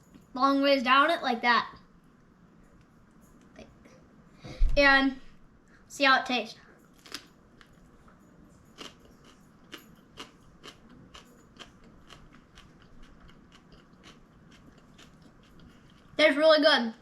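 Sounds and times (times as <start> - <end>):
person chewing crunchy food: 6.9 - 7.7, 8.7 - 16.2.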